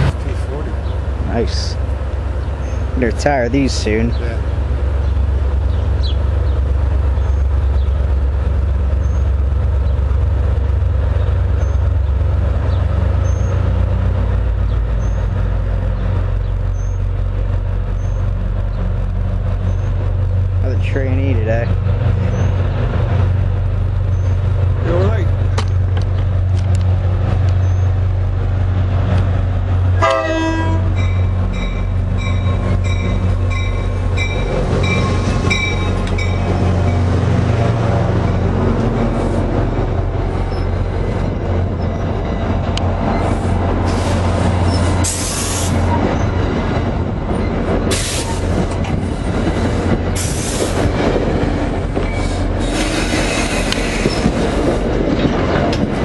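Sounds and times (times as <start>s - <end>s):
train engine humming low: 0.0s - 56.0s
train horn: 30.0s - 31.0s
wheels squealing on curve: 52.0s - 54.6s.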